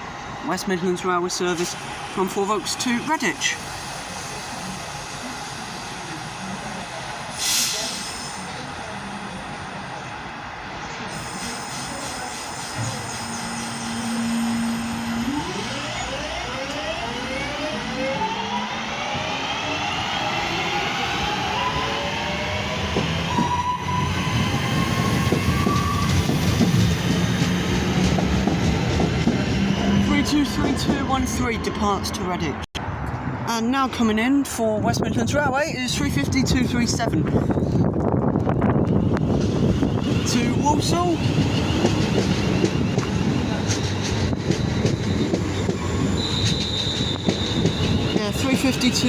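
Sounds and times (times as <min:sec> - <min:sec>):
train rumbling on rails: 0:00.0 - 0:49.0
electric train motors whining: 0:11.1 - 0:31.3
rail clicks: 0:19.4 - 0:32.2, 0:37.7 - 0:49.0.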